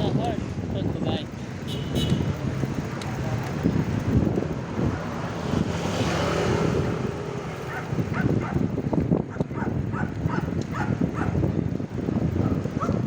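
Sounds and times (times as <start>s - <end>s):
vehicle passing: 0.0s - 8.9s
wind buffeting microphone: 0.0s - 13.0s.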